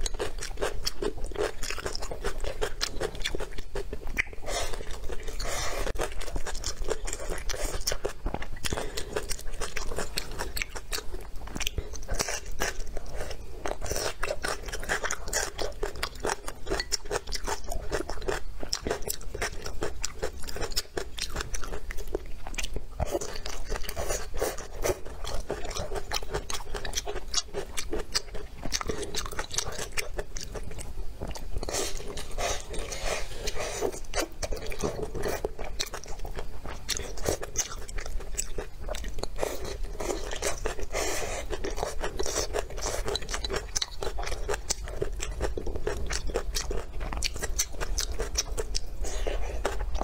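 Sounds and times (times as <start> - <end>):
person chewing food: 0.0 - 50.0.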